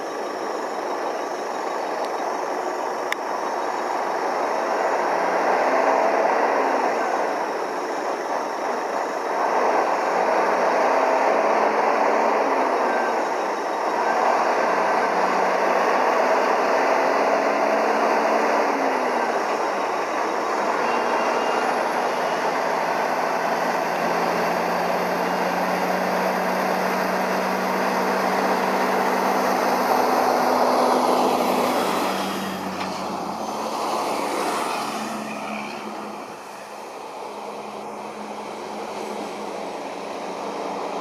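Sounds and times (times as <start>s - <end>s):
vehicle running: 0.0s - 41.0s.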